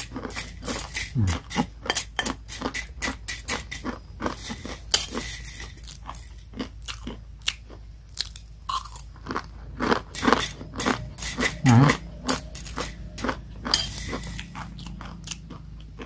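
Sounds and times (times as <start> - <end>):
crunching crispy noodles: 2.3 - 12.0.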